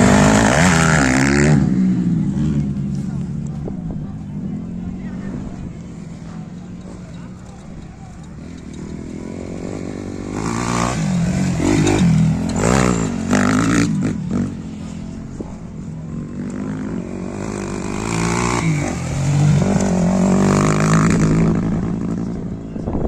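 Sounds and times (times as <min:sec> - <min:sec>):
racing motorcycles revving past: 0:00.0 - 0:03.0, 0:08.4 - 0:15.2, 0:15.9 - 0:22.5.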